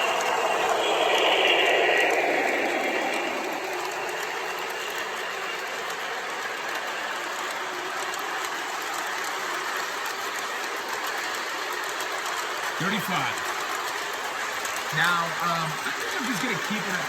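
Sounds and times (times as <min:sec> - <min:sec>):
model train clattering on track: 0:03.7 - 0:17.0.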